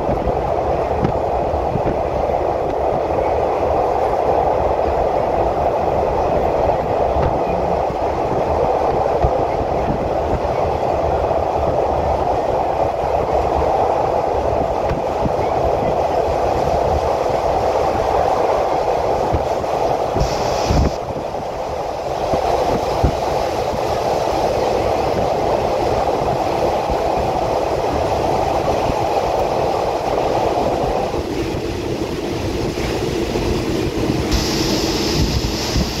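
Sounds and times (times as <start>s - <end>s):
train wheels rumbling on rails: 0.0s - 36.0s
high hiss: 20.1s - 21.0s, 34.3s - 36.0s.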